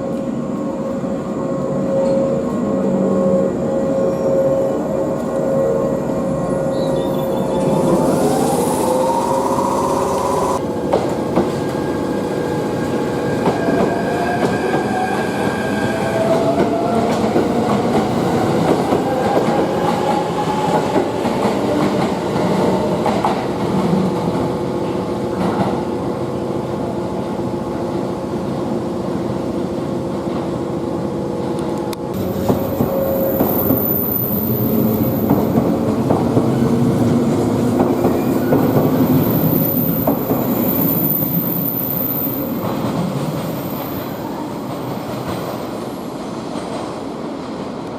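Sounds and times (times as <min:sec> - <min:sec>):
train wheels on rails: 0:07.1 - 0:26.0, 0:30.0 - 0:47.9
rising whine: 0:07.2 - 0:10.6.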